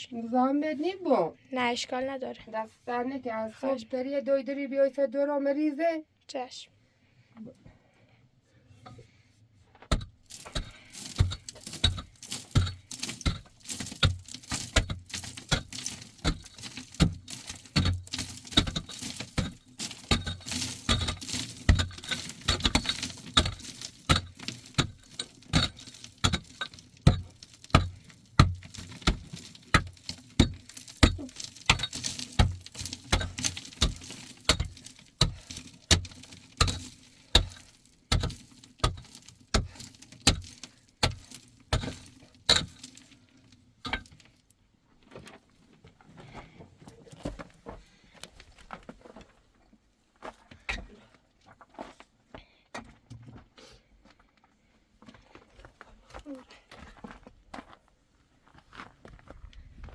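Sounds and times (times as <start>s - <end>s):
crunching footsteps: 10.2s - 43.2s, 55.0s - 59.9s.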